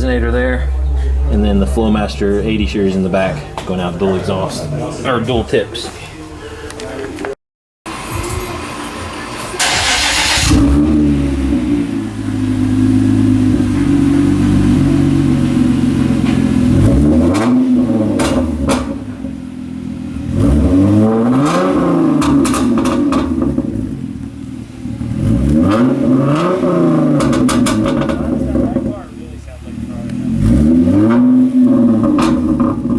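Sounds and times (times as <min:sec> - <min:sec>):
car engine idling and revving: 0:07.9 - 0:32.9
car engine starting: 0:07.9 - 0:32.9.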